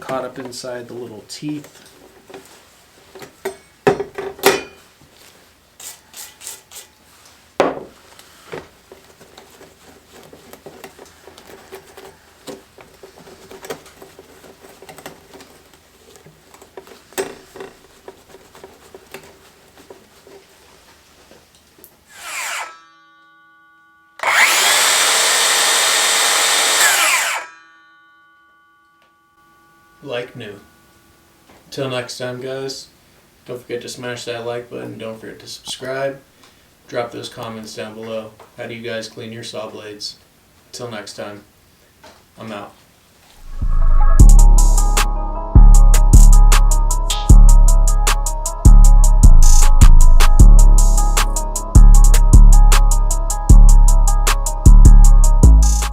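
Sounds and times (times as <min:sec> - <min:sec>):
scraping and clicking on saw blade: 0:05.8 - 0:06.9, 0:22.1 - 0:22.8, 0:24.2 - 0:27.5
loud pitch-sweeping sound: 0:43.4 - 0:55.9.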